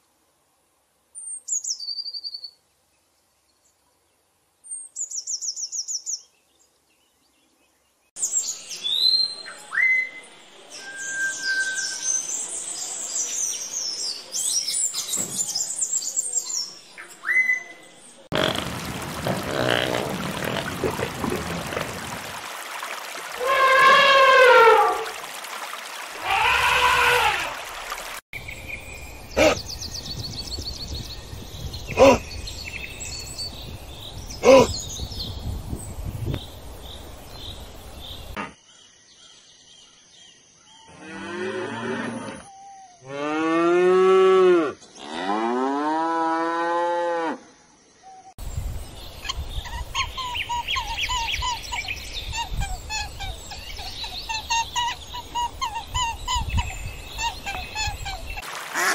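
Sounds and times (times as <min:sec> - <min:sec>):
long rising and falling animal calls: 0:18.3 - 0:22.5, 0:23.1 - 0:25.2.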